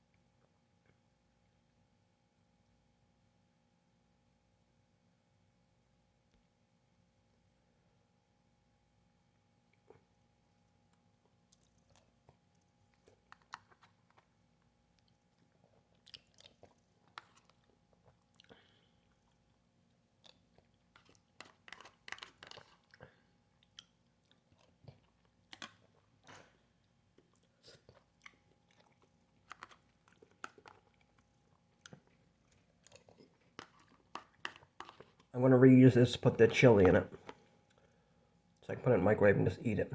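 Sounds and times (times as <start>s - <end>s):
person chewing food: 9.7s - 35.3s, 37.1s - 38.4s.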